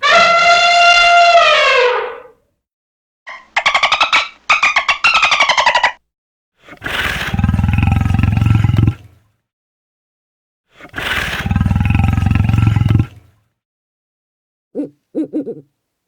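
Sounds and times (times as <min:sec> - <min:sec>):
deep low animal call: 0:00.0 - 0:02.3, 0:07.2 - 0:09.2, 0:11.3 - 0:13.2
fast-pulsing falling animal call: 0:00.0 - 0:02.3, 0:03.3 - 0:06.0.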